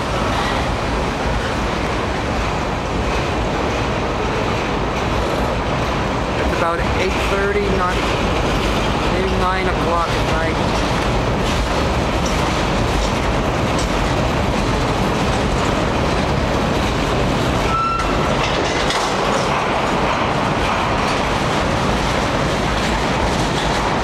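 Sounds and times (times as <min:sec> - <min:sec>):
train wheels rumbling clickety-clack: 0:00.0 - 0:24.0
high wheel squeal: 0:17.7 - 0:18.2.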